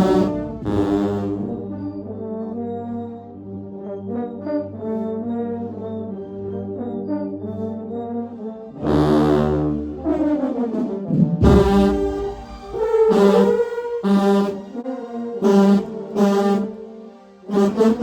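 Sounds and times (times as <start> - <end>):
deep low-brass bass note: 0.0 - 1.9, 11.1 - 13.4
brass band playing chords: 0.0 - 2.6, 8.7 - 16.8, 17.5 - 18.0.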